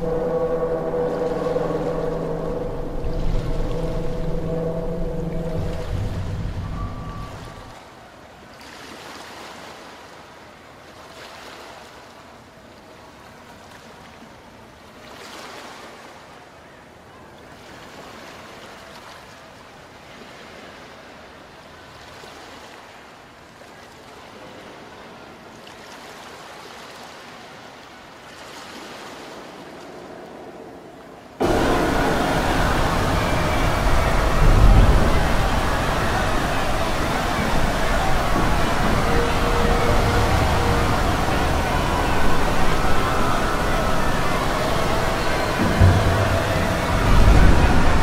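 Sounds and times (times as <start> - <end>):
ocean waves washing: 0.0 - 12.0, 24.2 - 48.0.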